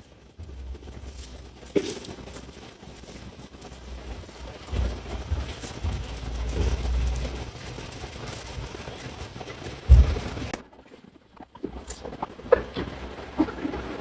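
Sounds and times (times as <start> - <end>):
heavy rain falling: 0.0 - 14.0
scattered ticks: 0.0 - 14.0
low rumbling: 9.7 - 10.6.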